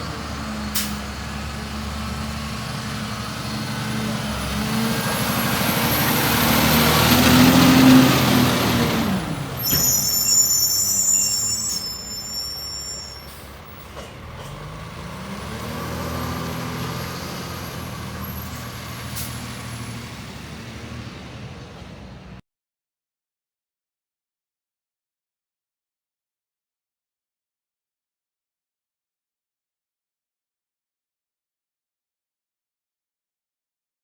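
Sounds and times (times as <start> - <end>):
truck diesel engine revving: 0.0 - 10.2, 13.3 - 22.4
high squealing tones: 9.6 - 13.6.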